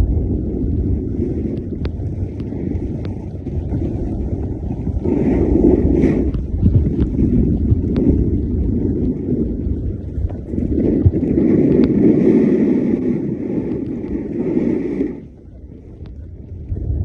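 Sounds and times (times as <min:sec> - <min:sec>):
wind buffeting microphone: 0:00.0 - 0:17.0
faint clicks: 0:01.5 - 0:05.0, 0:15.9 - 0:16.7.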